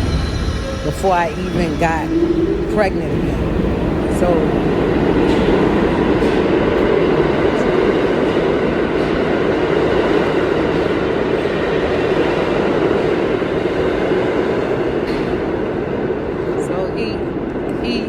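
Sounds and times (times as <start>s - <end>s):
train rumble from inside carriage: 0.0s - 18.0s.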